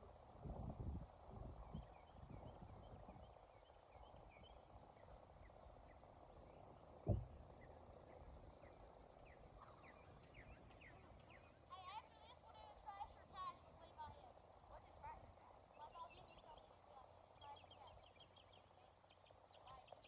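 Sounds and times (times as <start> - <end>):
faint bird chirps: 1.6 - 11.7, 14.3 - 20.0
dull thump: 7.0 - 7.4.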